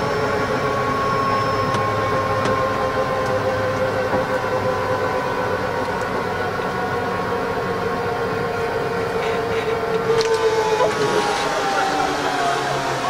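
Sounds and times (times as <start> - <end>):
helicopter engine and rotor whine: 0.0 - 13.0.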